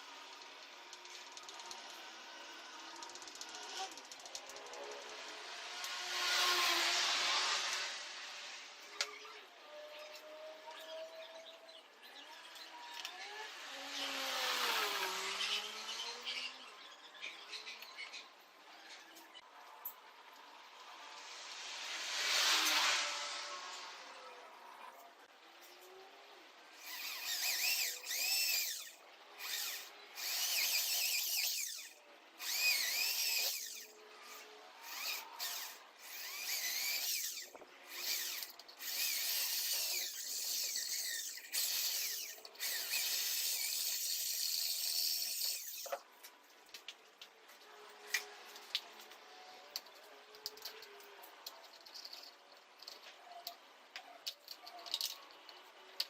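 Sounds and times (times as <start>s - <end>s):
electric drill whining: 26.8s - 46.0s.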